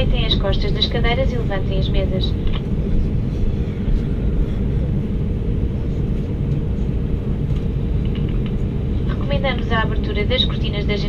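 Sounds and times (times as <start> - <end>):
aircraft cabin low rumble: 0.0 - 11.0
faint steady hum: 0.0 - 11.0.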